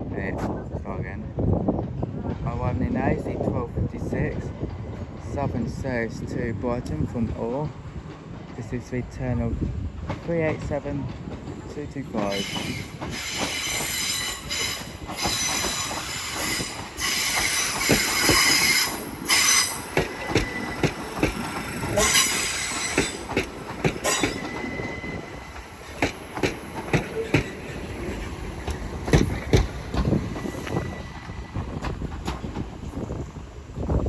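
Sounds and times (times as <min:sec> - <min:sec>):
wheels clicking over rail joints: 0:10.0 - 0:30.8
train wheels squealing: 0:12.3 - 0:21.2, 0:21.9 - 0:25.8, 0:27.0 - 0:31.8.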